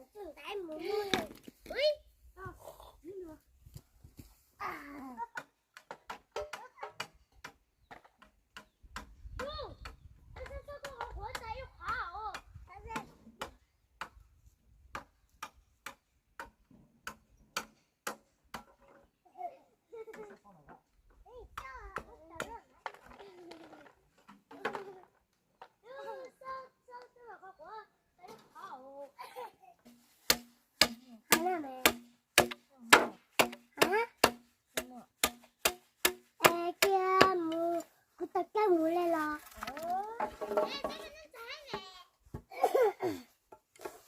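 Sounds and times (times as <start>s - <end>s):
child's voice: 0.0s - 3.5s, 4.6s - 5.4s, 6.5s - 7.1s, 9.4s - 13.2s, 19.3s - 20.2s, 21.2s - 25.2s, 25.8s - 29.8s, 31.1s - 32.0s, 33.8s - 34.2s, 36.4s - 43.2s
regular sharp knocks: 5.3s - 14.3s, 14.9s - 19.2s, 29.8s - 37.9s, 40.2s - 42.5s.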